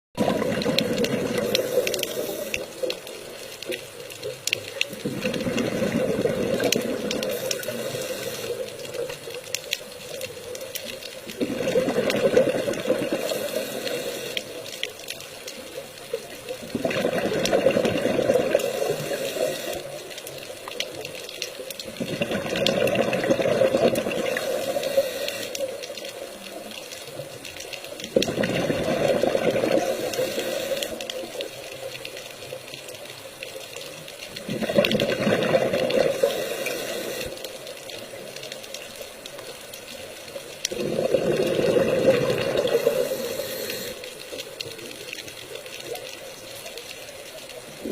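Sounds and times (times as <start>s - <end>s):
water rushing in surges: 39.9s - 47.9s.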